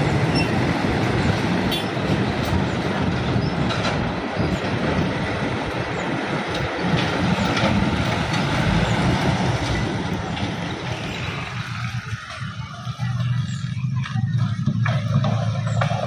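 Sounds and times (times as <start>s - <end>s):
train wheels rushing on rails: 0.0s - 16.0s.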